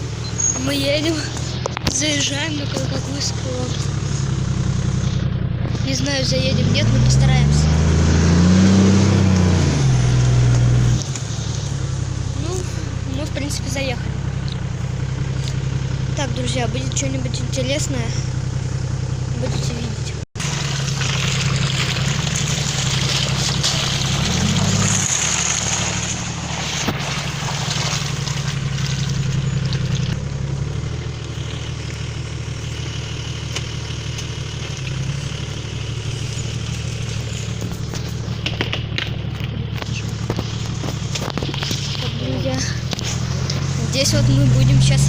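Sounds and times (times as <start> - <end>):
car engine under load: 0.0 - 45.0
tyres hissing through mud: 20.4 - 45.0.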